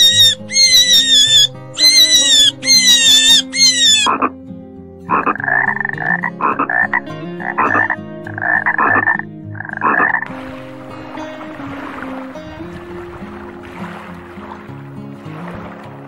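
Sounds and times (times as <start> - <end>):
shrill wavering animal call: 0.0 - 4.3, 5.1 - 6.6
frog croaking: 0.0 - 4.4, 5.1 - 10.3.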